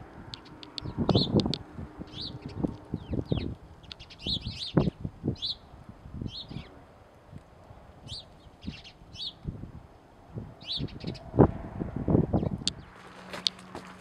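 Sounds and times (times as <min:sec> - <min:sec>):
small birds chirping: 0:00.3 - 0:06.8, 0:07.7 - 0:09.6, 0:10.6 - 0:11.3, 0:12.3 - 0:13.9.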